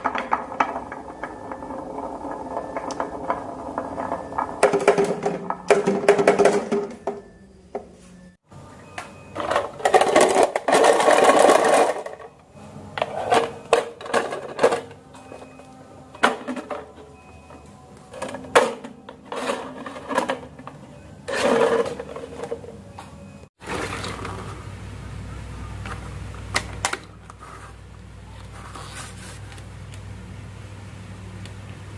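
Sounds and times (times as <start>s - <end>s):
marbles rolling down a run: 0.0s - 6.8s.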